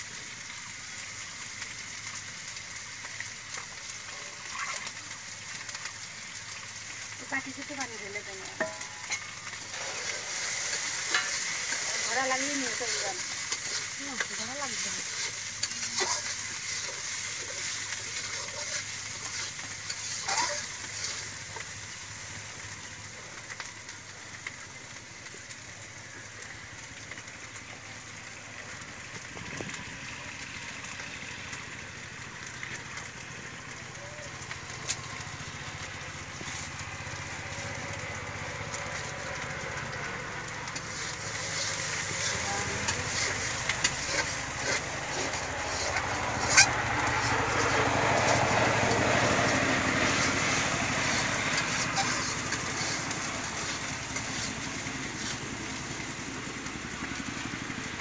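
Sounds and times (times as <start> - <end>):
eggs sizzling in hot oil: 0.0 - 58.0
metal spatula clicking on pan: 8.6 - 9.2.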